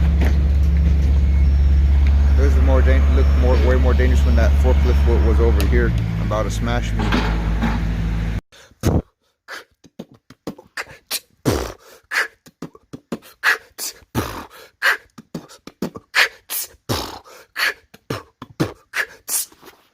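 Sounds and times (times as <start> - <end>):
beatboxing mouth percussion: 8.7 - 19.9
beatboxed kick drum: 8.8 - 9.1, 9.8 - 17.3, 18.0 - 19.6.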